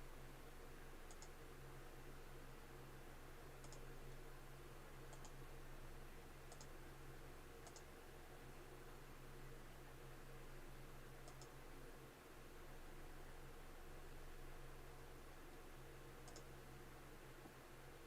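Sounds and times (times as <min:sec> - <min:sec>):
low electrical hum: 0:00.0 - 0:18.0
faint double clicks: 0:01.1 - 0:01.4, 0:03.6 - 0:03.9, 0:05.1 - 0:05.4, 0:06.5 - 0:06.8, 0:07.6 - 0:07.9, 0:11.2 - 0:11.6, 0:16.2 - 0:16.5.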